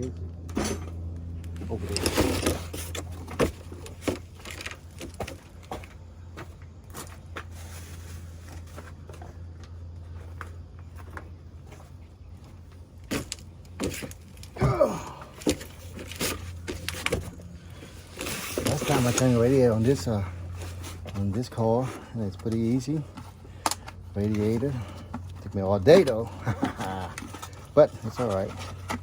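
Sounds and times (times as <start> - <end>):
steady low hum: 0.0 - 29.0
light handling clicks and knocks: 15.2 - 29.0.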